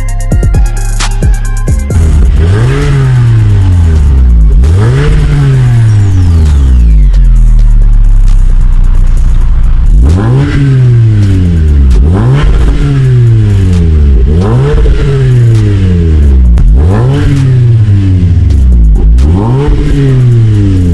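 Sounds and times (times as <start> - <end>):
car engine revving: 0.2 - 20.9.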